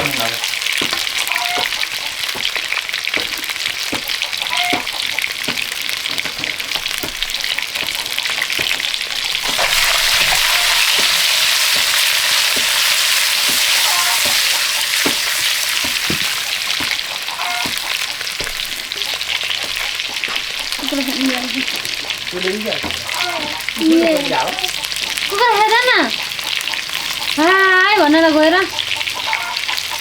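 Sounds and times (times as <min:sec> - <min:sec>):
food sizzling in hot oil: 0:00.0 - 0:30.0
sharp clicks and knocks: 0:00.7 - 0:20.8.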